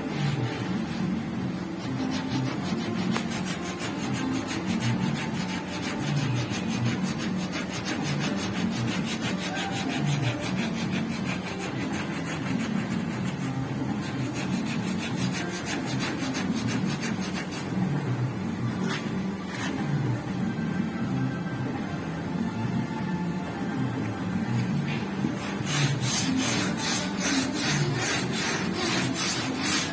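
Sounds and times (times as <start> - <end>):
sandpaper rasping on car body: 1.8 - 18.0, 25.4 - 29.9.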